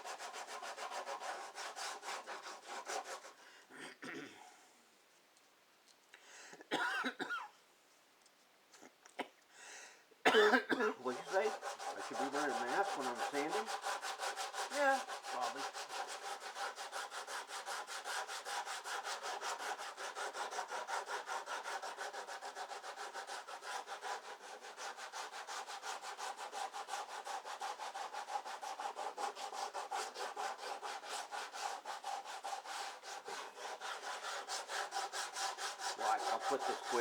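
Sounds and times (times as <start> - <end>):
hand tool rasping wood: 0.0 - 3.4, 11.0 - 37.0.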